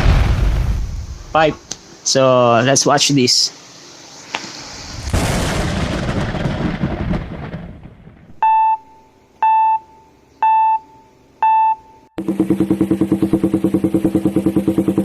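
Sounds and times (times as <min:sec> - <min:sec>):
boom-like rumble: 0:00.0 - 0:01.6, 0:04.7 - 0:08.4
short electronic beeps: 0:08.4 - 0:12.2.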